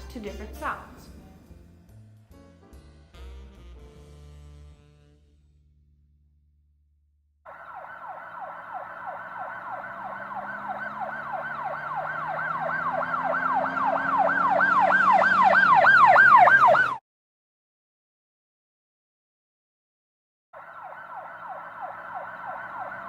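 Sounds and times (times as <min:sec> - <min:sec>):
emergency siren yelping: 0:07.5 - 0:17.0, 0:20.6 - 0:23.0.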